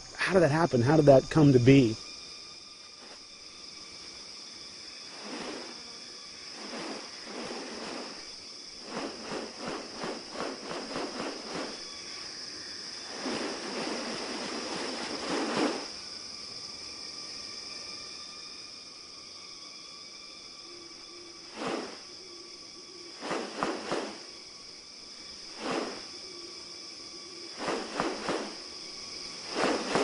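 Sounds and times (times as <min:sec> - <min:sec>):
insects droning: 0:00.0 - 0:30.0
rustling swishes: 0:05.1 - 0:05.8, 0:06.5 - 0:11.8, 0:13.1 - 0:16.0, 0:21.5 - 0:22.0, 0:23.2 - 0:24.2, 0:25.5 - 0:26.1, 0:27.6 - 0:28.6, 0:29.3 - 0:30.0.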